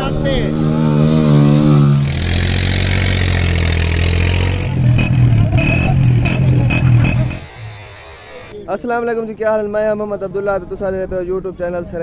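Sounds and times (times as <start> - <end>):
motorcycle engine running loudly: 0.0 - 8.5.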